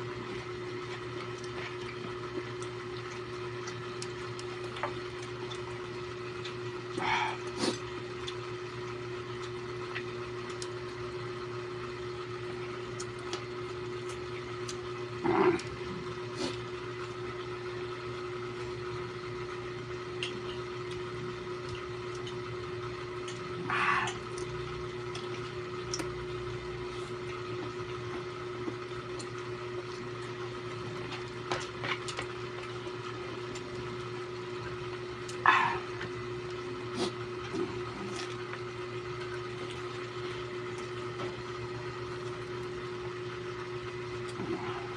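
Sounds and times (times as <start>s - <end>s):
background hum: 0.0s - 44.9s
person chewing: 35.2s - 36.2s.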